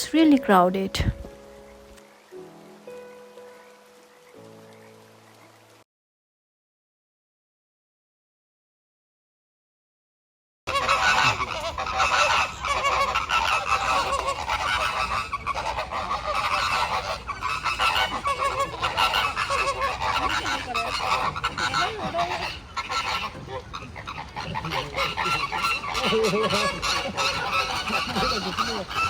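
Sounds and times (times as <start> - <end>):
flock of birds goose-like calls: 10.7 - 29.0.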